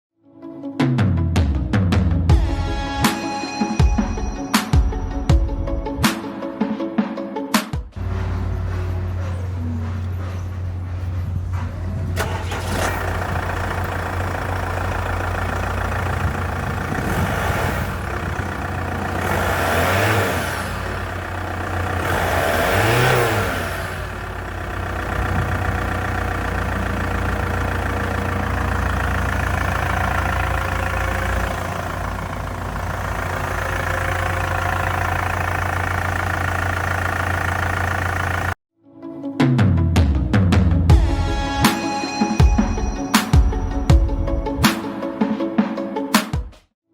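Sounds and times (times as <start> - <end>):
car engine idling and revving: 8.0 - 38.6.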